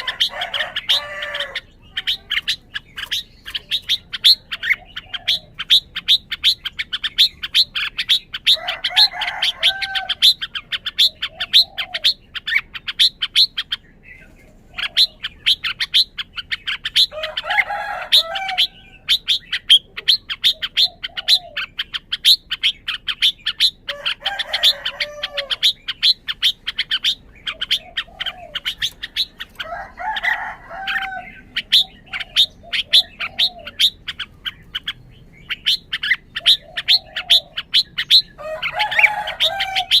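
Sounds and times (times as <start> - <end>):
bulbul chirping: 18.6 - 40.0.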